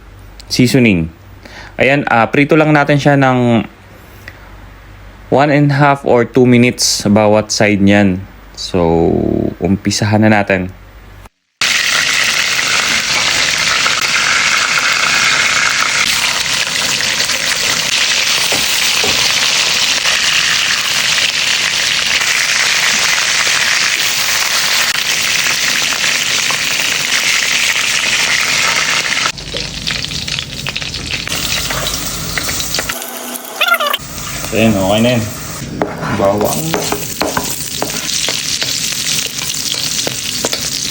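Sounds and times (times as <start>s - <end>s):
chicken sizzling in hot oil: 11.6s - 35.6s, 36.4s - 40.9s.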